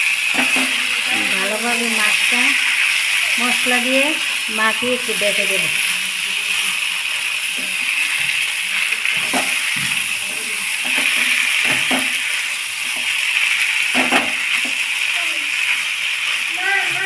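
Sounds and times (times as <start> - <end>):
prawns sizzling in a pan: 0.0 - 17.0
wooden spatula knocking on pan: 10.8 - 12.2.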